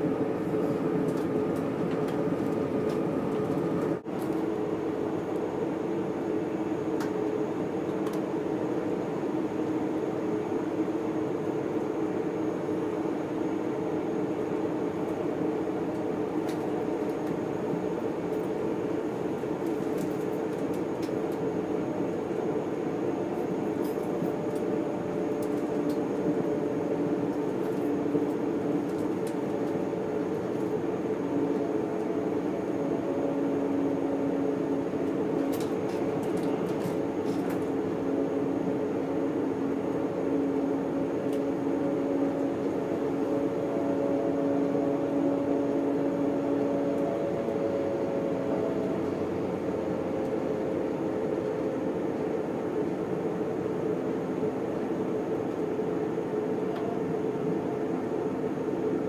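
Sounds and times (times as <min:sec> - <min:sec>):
train running inside carriage: 0:00.0 - 0:59.0.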